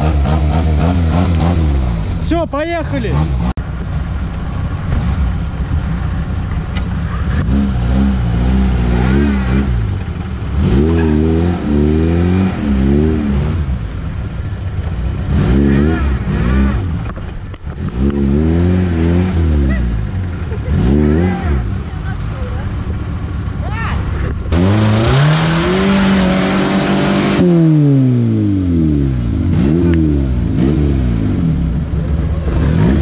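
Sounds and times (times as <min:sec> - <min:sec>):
off-road vehicle engine revving: 0:00.0 - 0:33.0.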